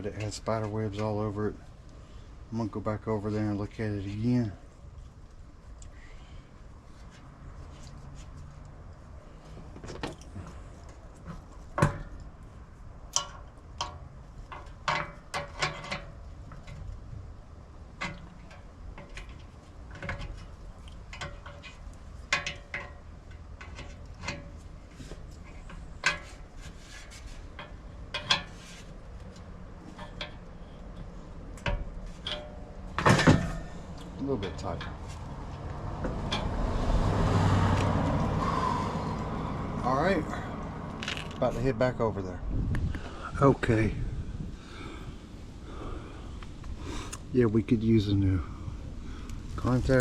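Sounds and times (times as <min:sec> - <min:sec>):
tools and small parts clattering: 0:13.1 - 0:17.0, 0:17.9 - 0:35.2.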